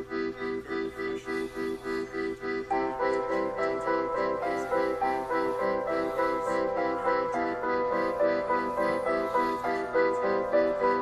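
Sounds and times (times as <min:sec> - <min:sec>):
piano-like melody: 0:00.0 - 0:11.0.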